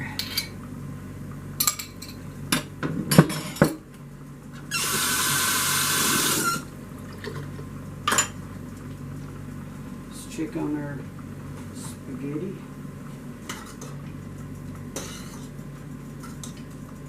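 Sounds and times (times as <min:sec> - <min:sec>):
kitchen tap running: 0:04.7 - 0:07.4
utensils clinking on dishes: 0:15.0 - 0:15.5.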